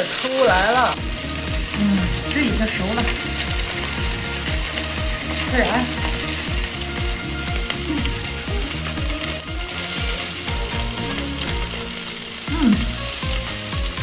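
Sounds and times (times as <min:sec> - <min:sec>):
meat sizzling on a grill: 0:00.0 - 0:14.0
regular low beat: 0:00.9 - 0:14.0
fat spitting: 0:01.4 - 0:02.4, 0:07.6 - 0:10.4, 0:12.4 - 0:13.3.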